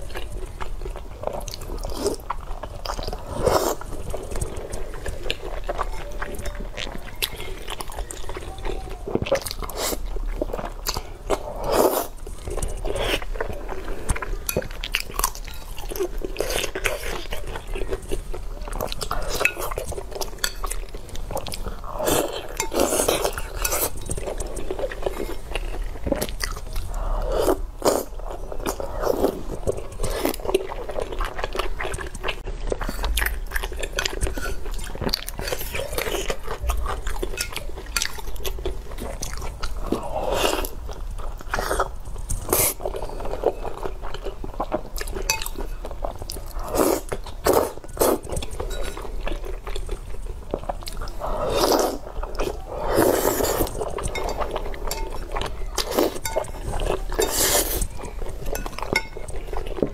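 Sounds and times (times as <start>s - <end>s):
person chewing and slurping meat: 0.0s - 59.9s.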